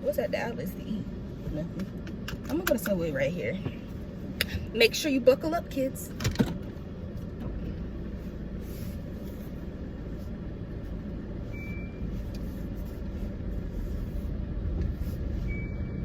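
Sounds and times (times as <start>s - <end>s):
road and engine rumble in car: 0.0s - 16.0s
high beep: 11.5s - 12.0s, 15.5s - 16.0s.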